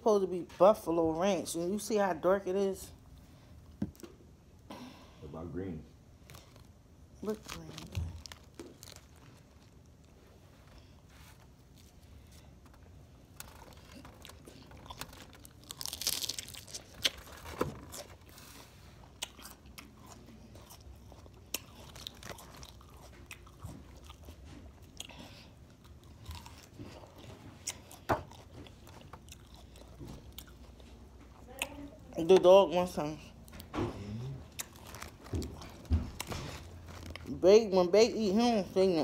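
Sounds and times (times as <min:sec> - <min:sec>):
lettuce being chewed: 0:06.2 - 0:32.0, 0:33.4 - 0:37.3.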